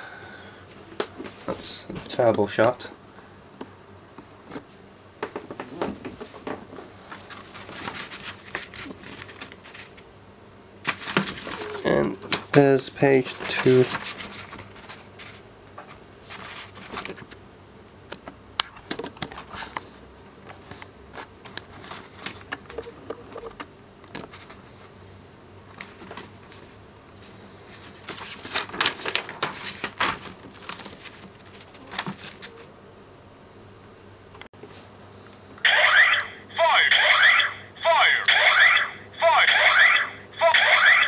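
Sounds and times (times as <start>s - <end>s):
paper rustling: 7.1s - 10.1s, 10.8s - 11.7s, 13.2s - 17.3s, 20.6s - 22.8s, 27.6s - 32.6s.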